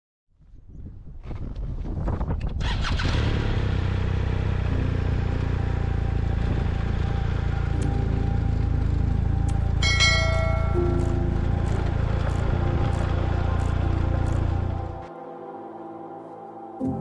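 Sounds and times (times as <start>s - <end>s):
motorcycle engine running: 2.6s - 15.0s
bright ringing tone: 9.7s - 12.1s.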